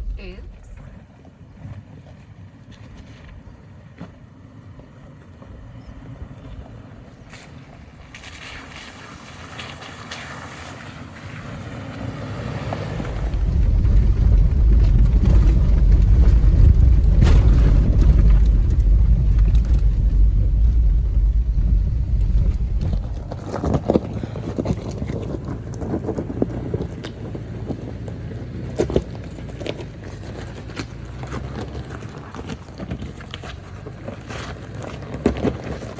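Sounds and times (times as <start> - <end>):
wind rumble on microphone: 0.0 - 2.2, 11.3 - 35.9
off-road vehicle driving: 0.0 - 35.9.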